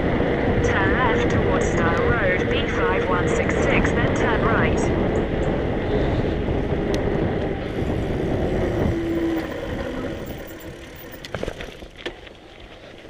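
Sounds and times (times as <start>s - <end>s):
motor vehicle passing: 5.6s - 12.7s.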